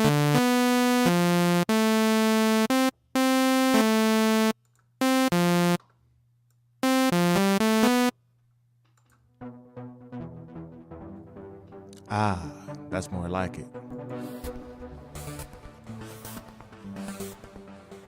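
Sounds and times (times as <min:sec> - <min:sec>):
buzzy synthesizer notes: 0:00.0 - 0:05.8, 0:06.8 - 0:08.1.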